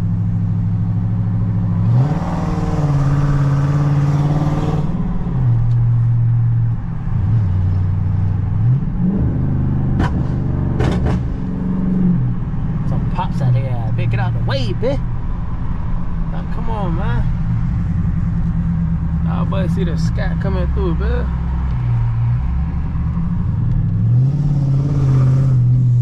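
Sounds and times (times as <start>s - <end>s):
car engine revving: 0.0s - 26.0s
sharp exhaust pops: 10.0s - 11.4s.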